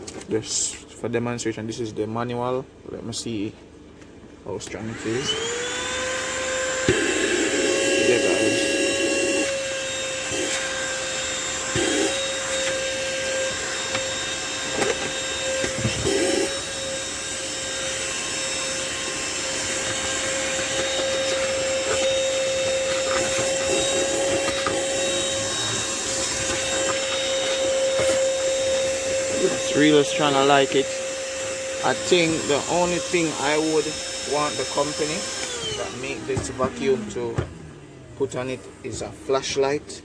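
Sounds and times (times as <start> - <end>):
handheld vacuum motor whine: 4.8 - 39.6
nozzle knocking and rubbing: 19.4 - 33.1.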